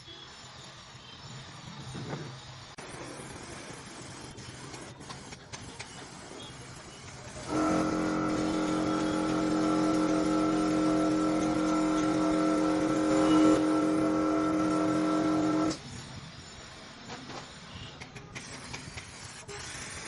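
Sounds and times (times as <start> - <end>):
small electric motor running: 7.1 - 16.9.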